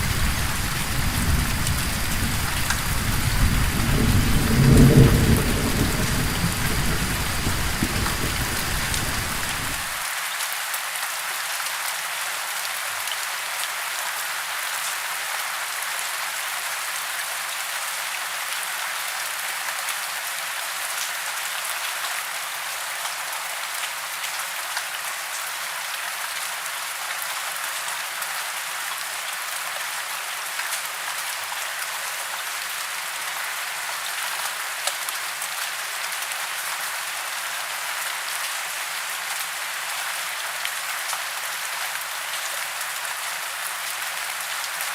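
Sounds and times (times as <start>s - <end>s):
thunder rumbling: 0.0s - 10.0s
heavy rain: 0.0s - 44.9s.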